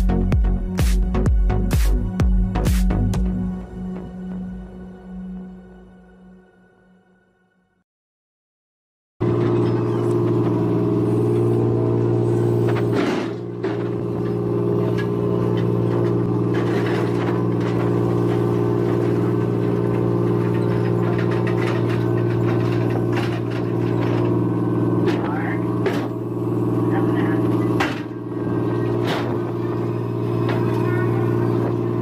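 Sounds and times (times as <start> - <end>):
low engine-like drone: 9.2 - 32.0.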